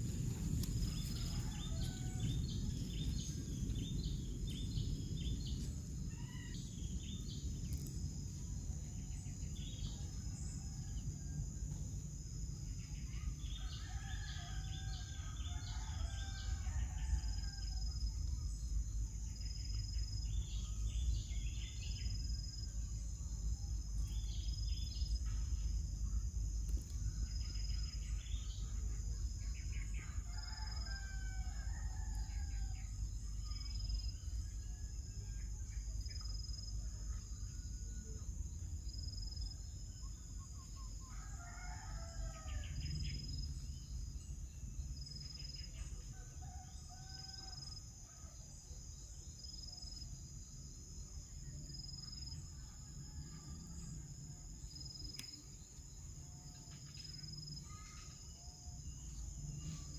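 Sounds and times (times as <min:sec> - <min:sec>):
insects droning: 0:00.0 - 0:59.9
rooster crowing: 0:00.9 - 0:02.7, 0:41.1 - 0:42.8.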